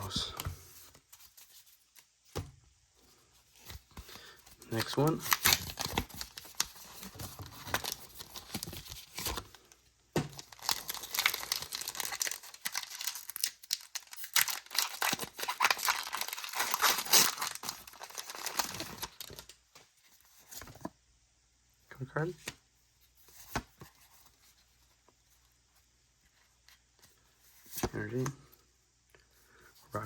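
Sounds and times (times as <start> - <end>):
foil wrapper tearing and crinkling: 10.4 - 19.4.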